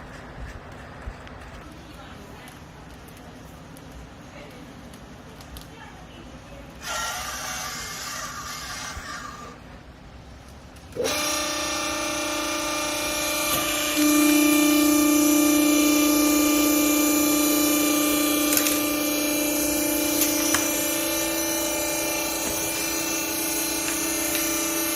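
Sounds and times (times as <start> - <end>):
hydraulic press motor hum: 10.9 - 24.9.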